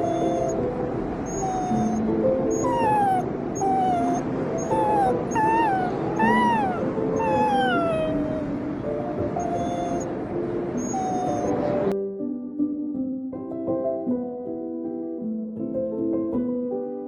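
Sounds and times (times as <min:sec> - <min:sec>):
wolf pup whimpering: 0:00.0 - 0:10.2, 0:10.8 - 0:11.9.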